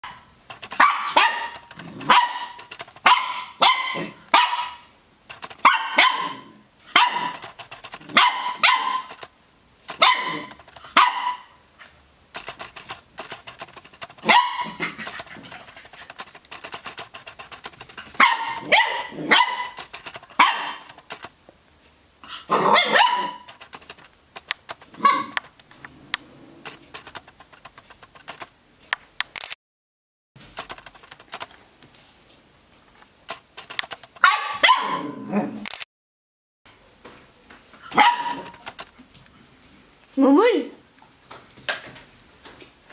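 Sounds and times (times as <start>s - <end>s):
puppy barking high-pitched yaps: 0.0s - 4.9s, 5.6s - 7.5s, 8.1s - 9.2s, 10.0s - 11.6s, 14.2s - 15.0s, 18.2s - 19.8s, 20.4s - 20.9s, 22.4s - 23.5s, 25.0s - 25.4s, 34.2s - 35.4s, 37.9s - 38.6s.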